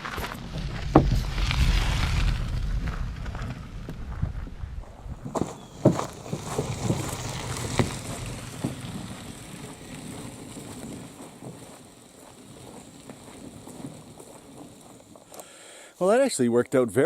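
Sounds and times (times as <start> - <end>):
canoe carrier wheels rolling: 0.0 - 15.8
sharp knocks and rattles: 5.2 - 12.3.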